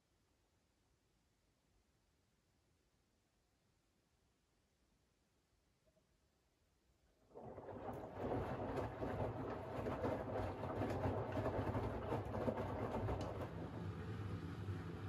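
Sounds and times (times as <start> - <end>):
laundry and water sloshing in drum: 7.3 - 15.0
washing machine motor hum: 7.3 - 15.0.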